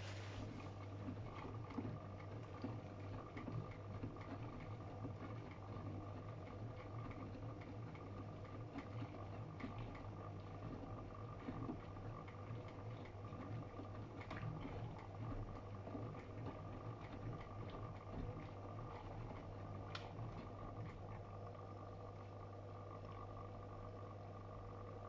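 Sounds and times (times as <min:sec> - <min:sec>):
washing machine motor hum: 0:00.0 - 0:25.0
water sloshing in drum: 0:00.0 - 0:25.0.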